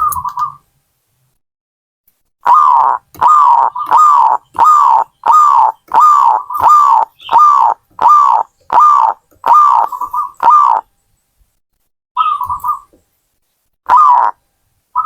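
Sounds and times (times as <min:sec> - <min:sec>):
dove cooing: 0:02.4 - 0:10.9, 0:12.2 - 0:12.9, 0:13.9 - 0:14.4
dove rolling trill: 0:02.4 - 0:10.9, 0:12.2 - 0:12.9, 0:13.9 - 0:14.4.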